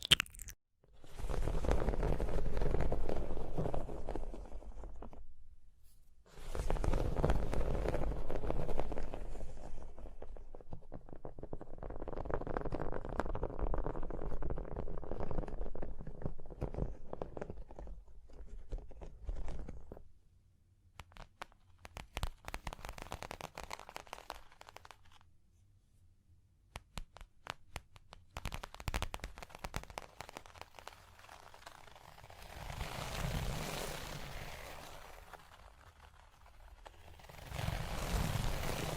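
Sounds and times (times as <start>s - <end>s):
scratching and rustling on objects: 27.4s - 38.9s.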